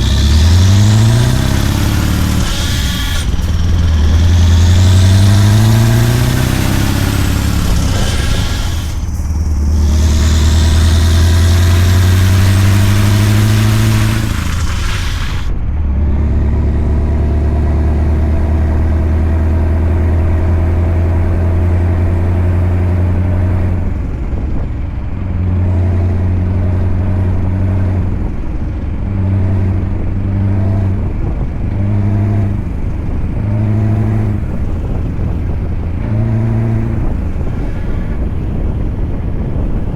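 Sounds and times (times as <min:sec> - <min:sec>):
loud hiss: 0:00.0 - 0:15.5
diesel truck engine running: 0:00.0 - 0:39.9.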